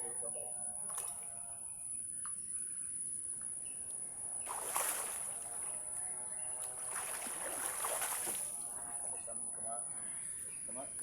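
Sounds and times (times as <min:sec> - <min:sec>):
water splashing and sloshing: 0:04.4 - 0:05.8, 0:06.6 - 0:08.7.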